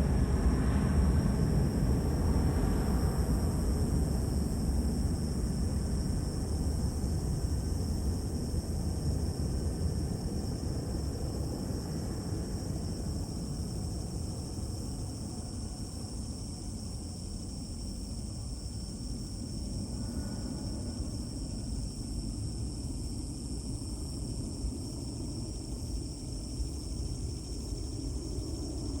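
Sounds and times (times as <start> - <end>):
high-pitched insect drone: 12.2 - 29.0.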